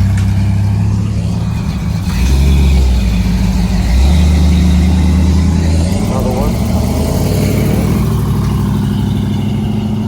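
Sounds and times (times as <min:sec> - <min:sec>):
car engine running and revving: 0:00.0 - 0:10.0.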